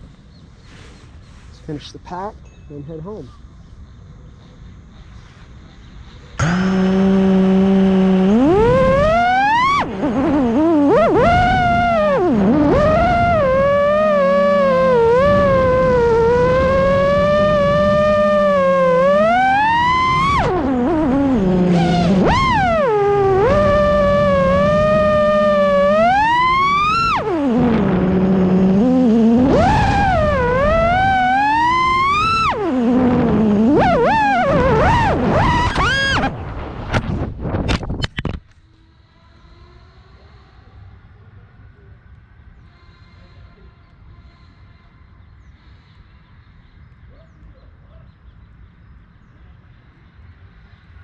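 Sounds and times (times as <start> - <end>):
faint bird chirps: 0.0 - 6.4
quadcopter motors whining: 5.9 - 37.3
wind on microphone: 6.4 - 38.4.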